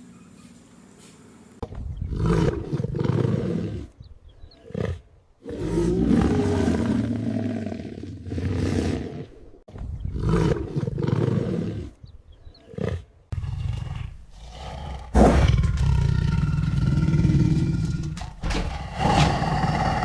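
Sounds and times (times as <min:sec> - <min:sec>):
big cat roaring and growling: 0:02.1 - 0:04.0, 0:04.7 - 0:09.5, 0:10.1 - 0:11.9, 0:12.8 - 0:20.0.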